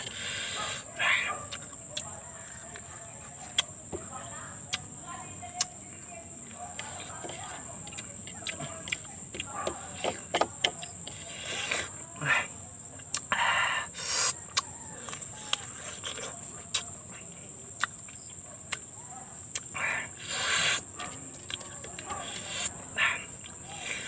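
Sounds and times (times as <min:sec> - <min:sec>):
crunchy fruit bites: 0:01.4 - 0:04.0, 0:04.6 - 0:04.9, 0:12.9 - 0:24.0
wet mouth clicks and smacks: 0:14.5 - 0:16.9, 0:19.5 - 0:19.8.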